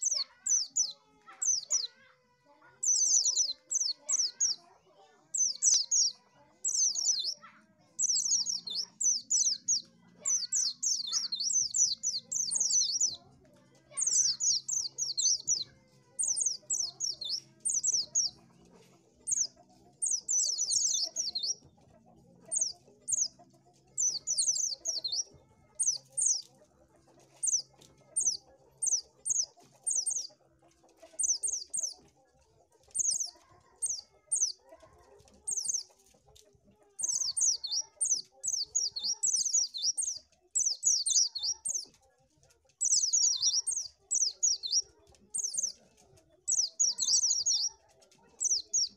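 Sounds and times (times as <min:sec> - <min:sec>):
bird twittering song: 0:00.0 - 0:02.0, 0:02.8 - 0:04.7, 0:05.3 - 0:13.2, 0:13.9 - 0:18.5, 0:19.2 - 0:21.6, 0:22.5 - 0:26.6, 0:27.3 - 0:30.4, 0:31.1 - 0:32.0, 0:32.9 - 0:34.6, 0:35.5 - 0:35.9, 0:37.0 - 0:41.9, 0:42.8 - 0:45.8, 0:46.5 - 0:47.7, 0:48.4 - 0:48.9.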